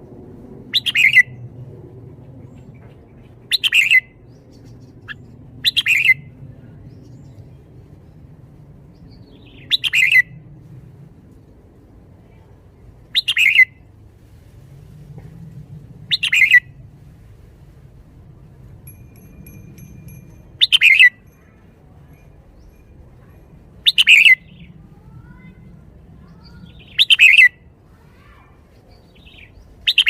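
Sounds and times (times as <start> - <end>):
bird singing bright phrases: 20.6 - 21.2, 26.2 - 27.5, 28.7 - 30.0.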